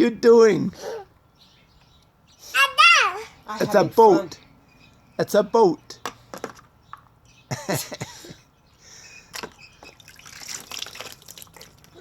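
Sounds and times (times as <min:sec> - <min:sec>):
water trickling: 0:09.3 - 0:12.0.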